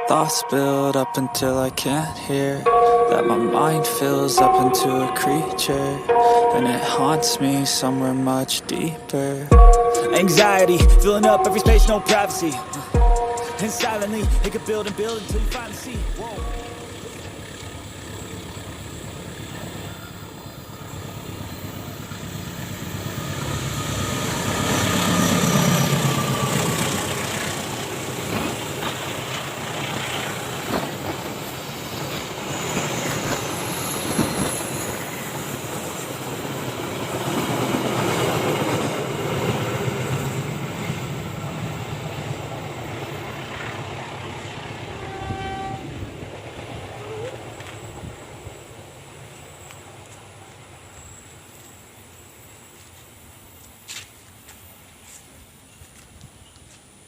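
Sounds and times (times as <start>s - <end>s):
locomotive engine: 2.6s - 50.8s
train wheels clicking over rail joints: 23.4s - 41.0s.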